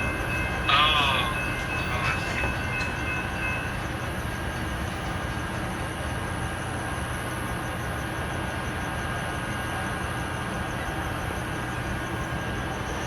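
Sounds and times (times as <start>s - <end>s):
train wheels rumbling: 0.0s - 7.0s.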